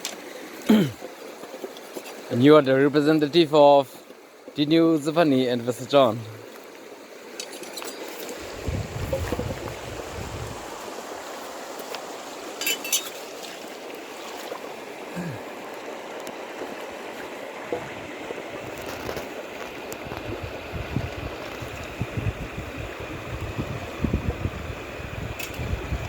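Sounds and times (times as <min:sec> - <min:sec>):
rushing water: 0:00.0 - 0:26.0
wind buffeting microphone: 0:08.4 - 0:11.2, 0:19.8 - 0:26.0
light clinks: 0:12.6 - 0:13.2.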